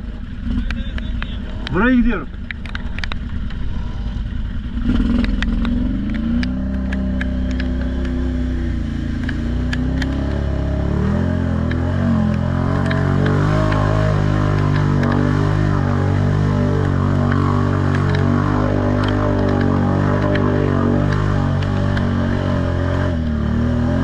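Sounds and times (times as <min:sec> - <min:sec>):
atv engine running under load: 0:00.0 - 0:24.0
sharp clicks: 0:00.6 - 0:03.7, 0:05.0 - 0:08.2, 0:09.1 - 0:10.5, 0:11.6 - 0:15.2, 0:16.8 - 0:22.1.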